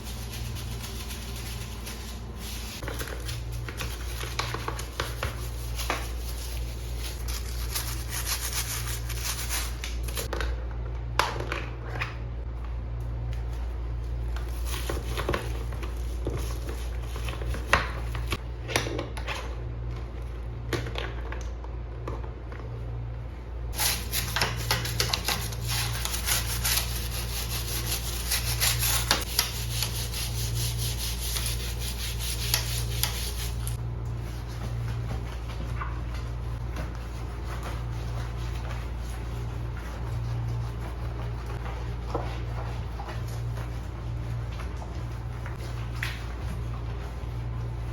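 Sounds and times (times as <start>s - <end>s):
brush scrubbing a surface: 0.0s - 10.3s, 14.3s - 18.4s, 23.8s - 47.9s
steady low hum: 0.0s - 18.8s.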